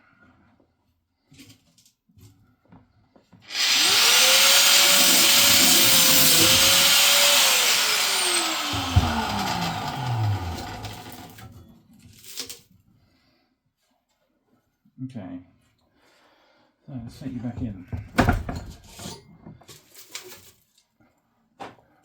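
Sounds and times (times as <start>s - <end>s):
electric cutter grinding metal: 3.5s - 11.4s.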